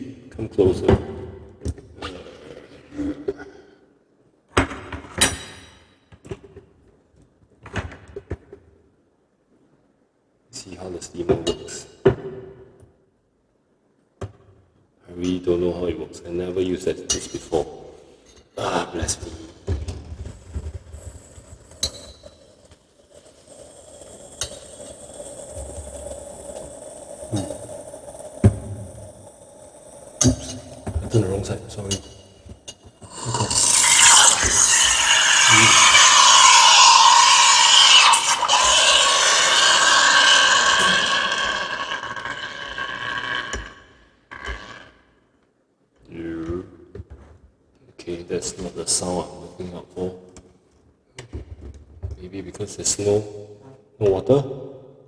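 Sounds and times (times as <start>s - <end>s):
objects knocking and clattering: 51.2s - 52.2s.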